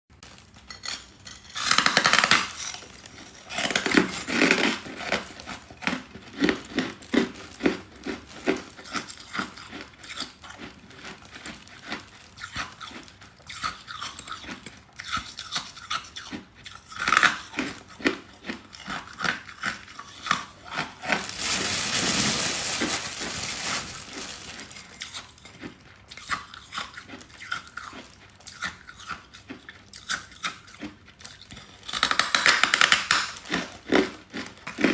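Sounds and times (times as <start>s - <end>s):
crunching frost chunks: 20.2s - 25.5s.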